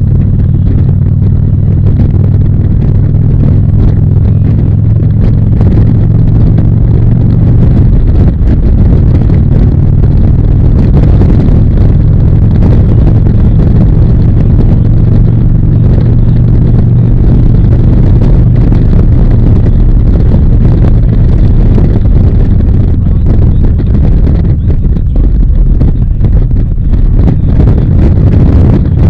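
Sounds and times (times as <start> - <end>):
motorcycle engine running steadily: 0.0 - 29.0.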